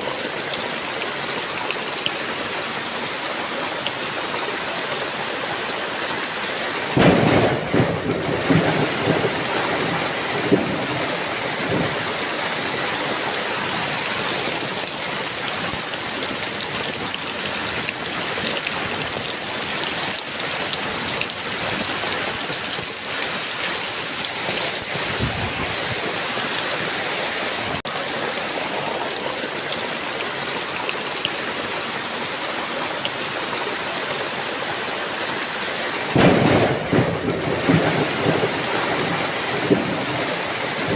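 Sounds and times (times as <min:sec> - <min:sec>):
heavy rain falling: 0:00.0 - 0:40.9
thunder rumbling: 0:06.9 - 0:12.8, 0:24.0 - 0:26.4, 0:36.1 - 0:40.9.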